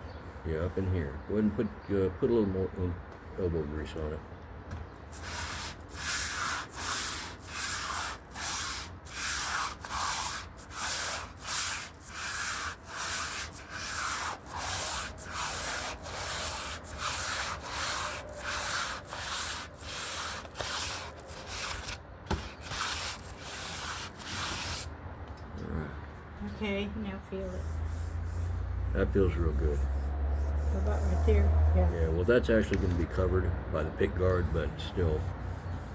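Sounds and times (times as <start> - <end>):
sandpaper rubbing back and forth: 5.1 - 24.9, 27.6 - 33.1, 34.1 - 35.9.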